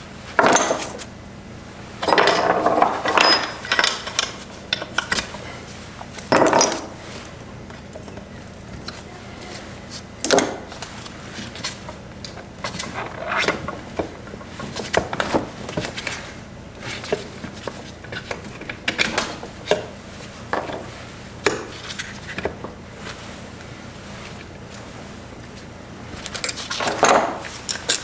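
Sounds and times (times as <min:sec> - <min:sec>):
tools and metal parts clinking: 0:00.4 - 0:01.1, 0:02.0 - 0:05.4, 0:06.3 - 0:07.0, 0:26.2 - 0:28.0.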